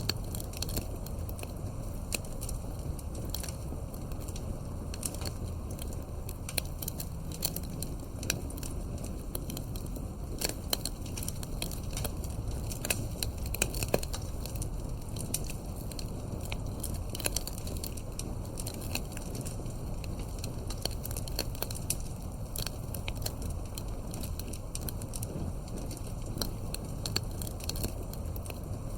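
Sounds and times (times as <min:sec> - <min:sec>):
campfire crackling: 0:00.0 - 0:28.9
low wind rumble: 0:00.0 - 0:28.9.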